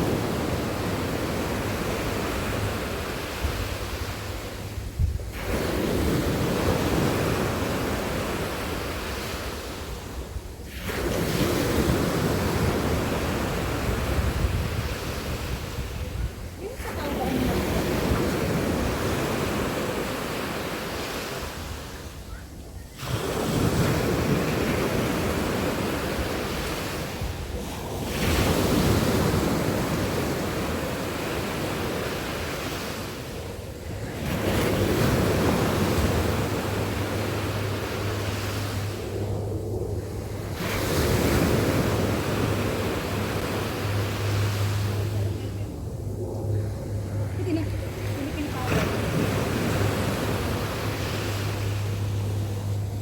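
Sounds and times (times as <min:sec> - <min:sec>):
sea waves breaking on beach: 0:00.0 - 0:53.0
low steady hum: 0:33.4 - 0:53.0.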